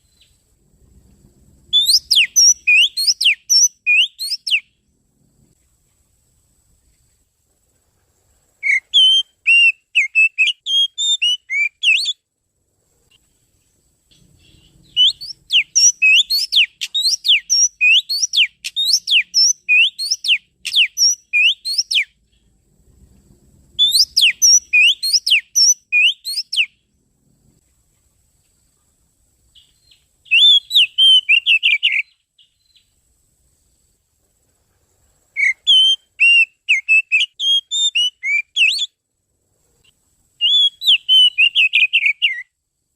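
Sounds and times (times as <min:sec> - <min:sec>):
bird song whistled notes: 0:00.0 - 0:00.4, 0:01.7 - 0:04.9, 0:08.6 - 0:12.2, 0:13.6 - 0:22.5, 0:23.7 - 0:26.9, 0:29.5 - 0:33.0, 0:35.3 - 0:39.0, 0:40.4 - 0:42.6.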